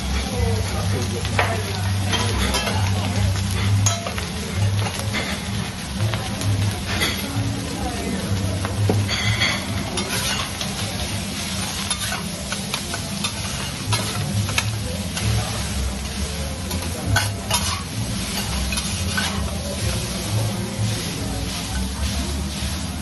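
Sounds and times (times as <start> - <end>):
food sizzling on griddle: 0.0 - 23.0
metal spatulas scraping and tapping: 9.0 - 10.8, 11.6 - 15.5, 16.7 - 19.9.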